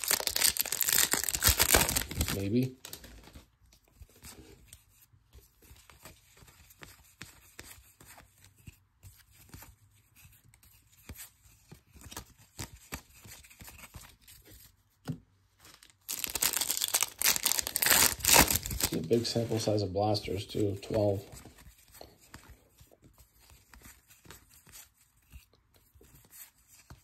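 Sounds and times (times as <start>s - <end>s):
pack wrapper crinkling: 0.0s - 3.4s, 15.7s - 19.1s
cards flipped by hand: 5.7s - 19.7s.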